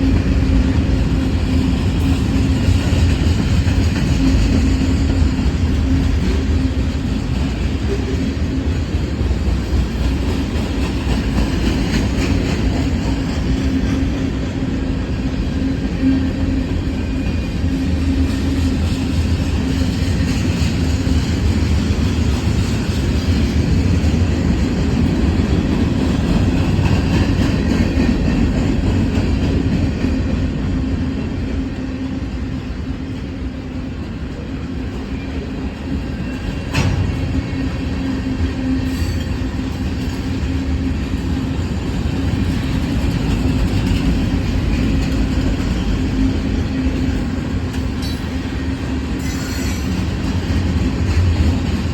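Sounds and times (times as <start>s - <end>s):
freight train cars rolling: 0.0s - 51.9s.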